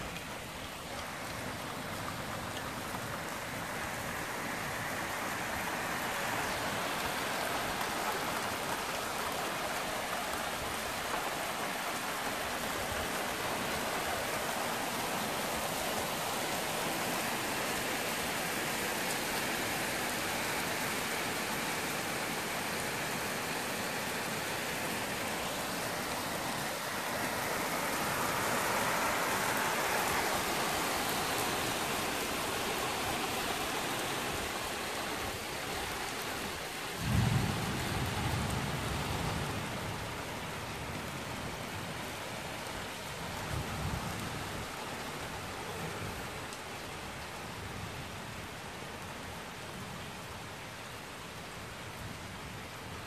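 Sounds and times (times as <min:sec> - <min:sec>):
heavy rain pouring: 0:00.0 - 0:53.0
low rumble of thunder: 0:37.0 - 0:40.2.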